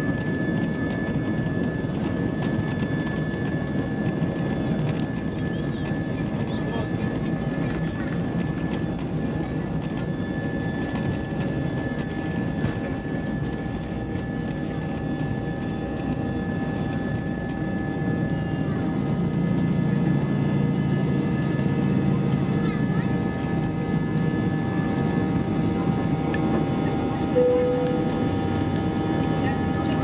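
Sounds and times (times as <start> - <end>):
aircraft cabin engine rumble: 0.0 - 30.0.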